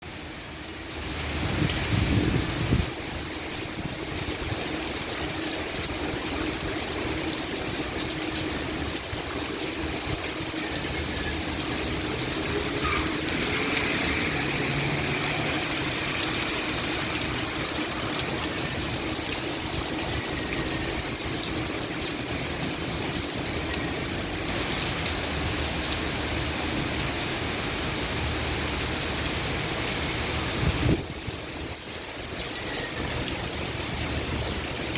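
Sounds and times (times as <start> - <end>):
heavy rain pouring: 0.0 - 34.9
strong wind gusts: 1.2 - 4.6, 30.2 - 31.7.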